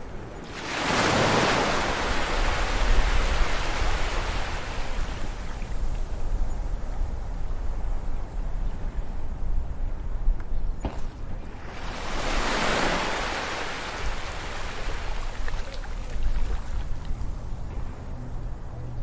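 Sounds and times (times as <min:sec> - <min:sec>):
low rumble of surf: 0:00.0 - 0:19.0
wave breaking on beach: 0:00.5 - 0:05.6, 0:11.6 - 0:16.7.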